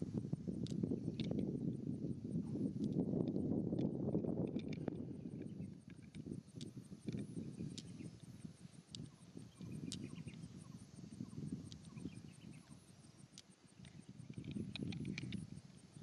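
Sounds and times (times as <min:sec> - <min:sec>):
cricket chirping: 0:00.0 - 0:16.0
sharp clicks: 0:00.6 - 0:01.6, 0:02.7 - 0:10.6, 0:11.5 - 0:16.0.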